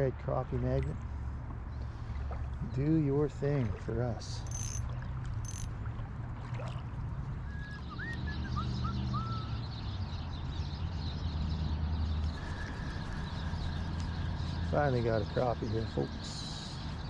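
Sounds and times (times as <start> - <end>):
creek water running: 0.4 - 7.2.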